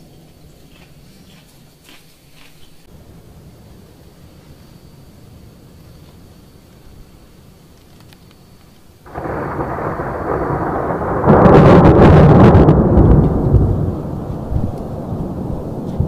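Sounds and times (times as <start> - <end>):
thunder crash and rumble: 9.0 - 16.0.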